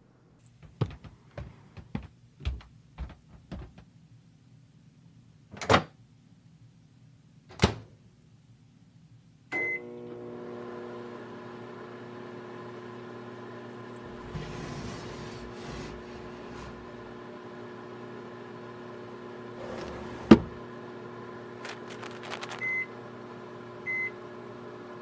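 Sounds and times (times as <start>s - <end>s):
microwave beep: 9.5s - 10.0s, 22.6s - 23.0s, 23.8s - 24.2s
microwave humming: 9.6s - 25.0s.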